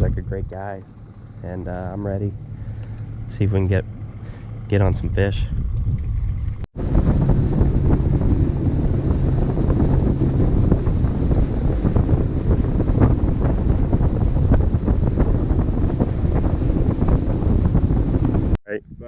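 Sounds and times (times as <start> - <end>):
wind buffeting microphone: 0.0 - 19.0
faint motor hum: 0.2 - 12.2.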